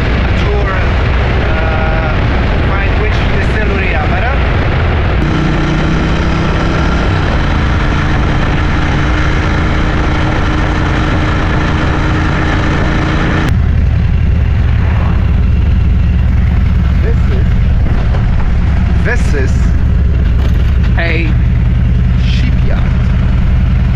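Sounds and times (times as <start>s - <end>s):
deep steady drone: 0.0s - 23.9s
motorcycle engine running: 0.0s - 23.9s
wind rush: 0.0s - 23.9s.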